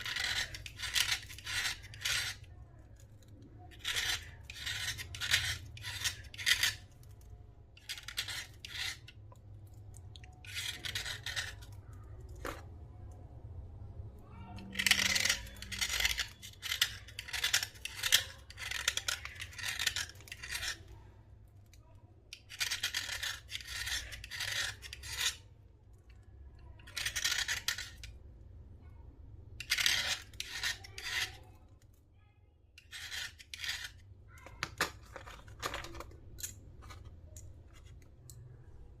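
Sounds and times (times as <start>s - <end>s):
gritty scraping of slate: 0.0s - 3.1s, 3.7s - 7.2s, 7.8s - 9.4s, 10.2s - 11.8s, 14.7s - 20.9s, 22.4s - 25.5s, 26.8s - 28.2s, 29.6s - 31.5s, 32.8s - 36.1s.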